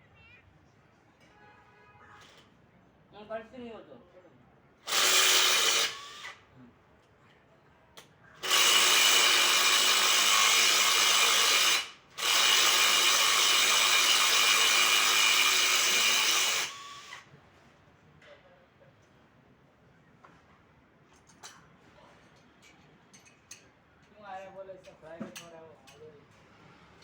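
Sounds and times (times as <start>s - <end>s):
power tool running: 4.9s - 6.4s, 8.4s - 17.2s.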